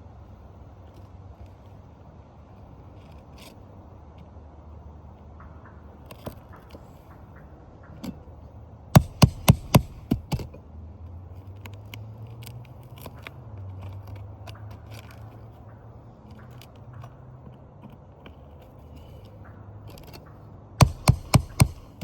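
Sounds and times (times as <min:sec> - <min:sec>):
small ticks and scrapes: 0:00.1 - 0:08.2, 0:09.2 - 0:22.0
hammer tapping metal: 0:09.0 - 0:10.4, 0:20.8 - 0:22.0.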